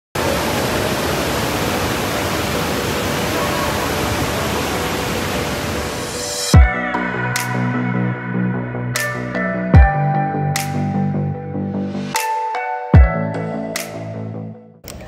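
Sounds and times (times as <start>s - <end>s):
waterfall roaring: 0.2s - 6.3s.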